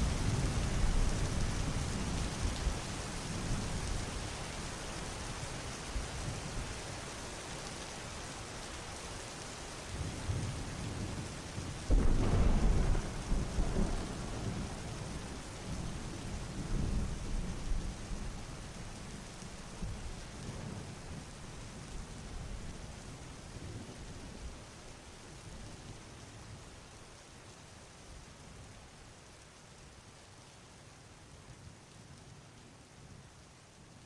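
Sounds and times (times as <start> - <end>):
heavy rain: 0.0 - 34.0
sharp thunderclap: 11.9 - 14.8
rolling thunder: 11.9 - 16.0.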